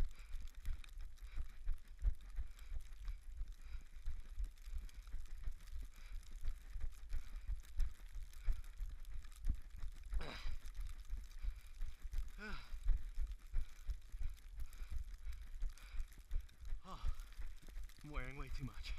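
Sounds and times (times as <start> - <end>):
small clicks: 0.0 - 18.9.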